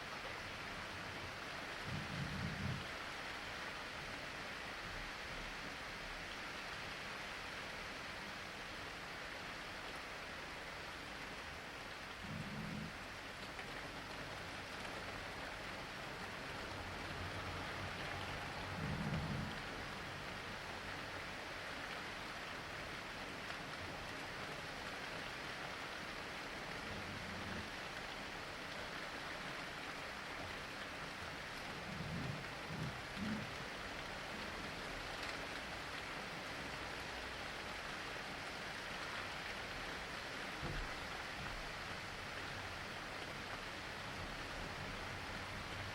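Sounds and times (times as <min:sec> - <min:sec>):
steady rain falling: 0:00.0 - 0:45.9
low rumble of thunder: 0:01.8 - 0:02.9, 0:17.2 - 0:20.0, 0:31.6 - 0:33.6.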